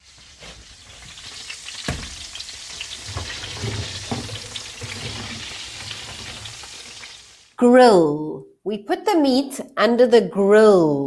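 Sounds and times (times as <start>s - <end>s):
food frying and sizzling: 0.0s - 7.6s.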